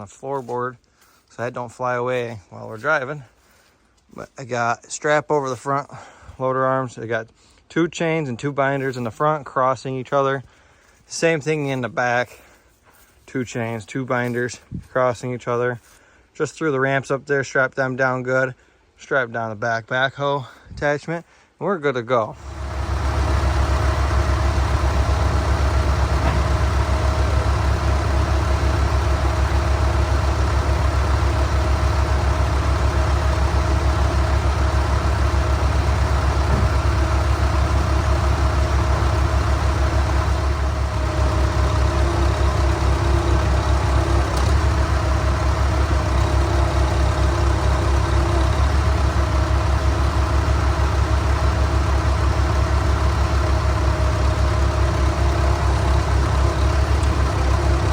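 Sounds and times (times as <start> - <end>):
vehicle engine running steadily: 22.4 - 57.9.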